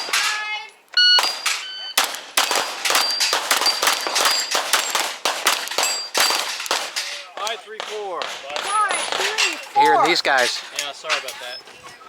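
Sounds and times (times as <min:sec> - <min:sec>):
pistol shots: 0:01.2 - 0:09.4
steel plates ringing: 0:02.6 - 0:05.0, 0:05.7 - 0:07.3.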